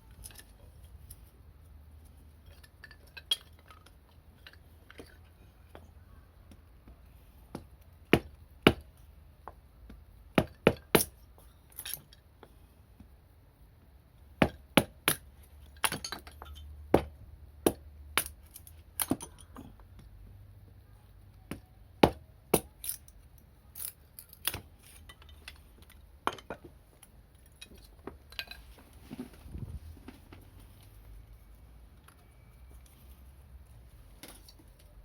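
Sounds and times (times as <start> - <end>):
sharp clicks and knocks of hard objects: 14.4 - 20.1, 21.3 - 29.4.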